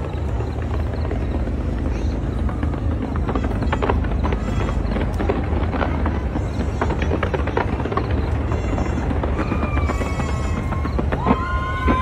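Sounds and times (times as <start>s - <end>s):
fireworks cracking: 0.0s - 12.0s
fireworks rumbling: 0.0s - 12.0s.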